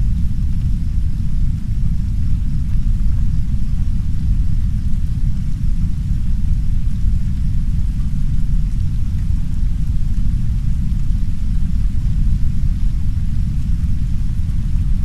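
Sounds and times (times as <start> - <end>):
deep brown noise rumble: 0.0 - 15.0
faint soft rain: 0.0 - 15.0.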